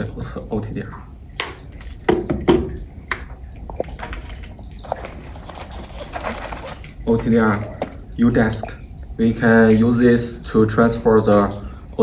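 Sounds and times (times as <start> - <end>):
packaging rustling: 3.7 - 8.0.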